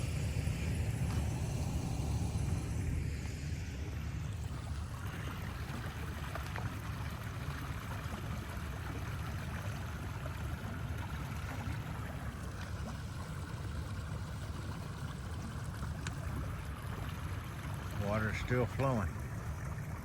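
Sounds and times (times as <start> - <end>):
vehicle moving slowly: 0.0 - 6.7
flowing rainwater: 0.0 - 20.0.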